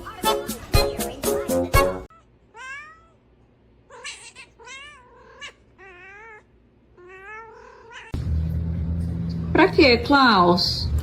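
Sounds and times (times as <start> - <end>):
cat meowing: 2.1 - 3.2, 3.9 - 8.2.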